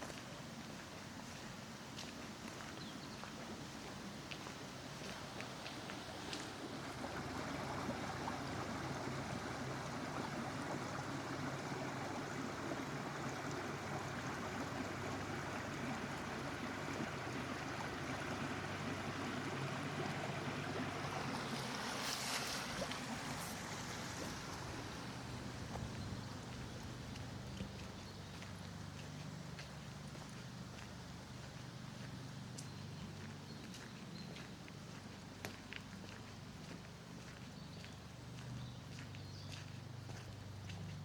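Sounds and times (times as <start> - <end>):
stream water rushing: 4.1 - 30.2.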